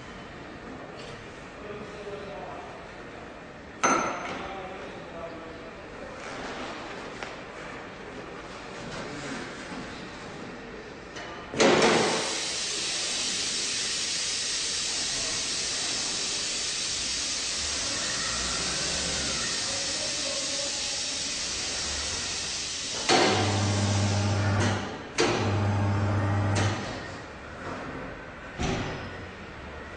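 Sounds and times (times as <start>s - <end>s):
air hissing: 11.9s - 27.0s
tyre changer motor humming: 23.1s - 26.9s.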